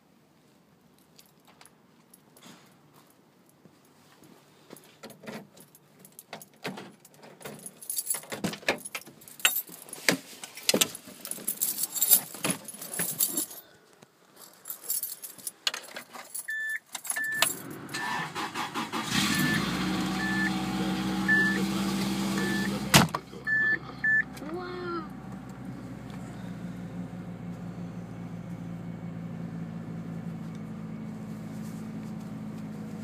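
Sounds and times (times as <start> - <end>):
keys jangling: 5.0 - 10.0, 11.2 - 13.6, 14.4 - 17.8
dashboard warning chime: 16.5 - 18.2, 19.2 - 24.3
car engine idling: 17.6 - 33.0.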